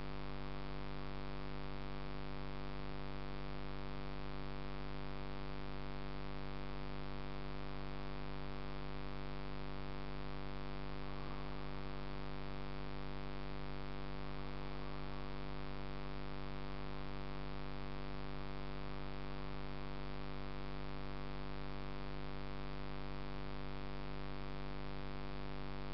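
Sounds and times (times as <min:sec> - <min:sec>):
electrical hum: 0:11.0 - 0:12.0.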